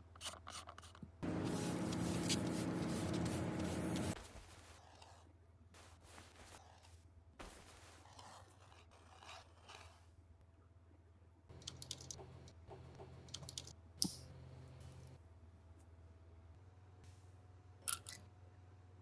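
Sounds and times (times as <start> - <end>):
steady low hum: 1.2 - 4.6
soft rustling: 1.5 - 5.2, 5.8 - 8.7
small clicks: 11.5 - 12.6, 13.2 - 14.2.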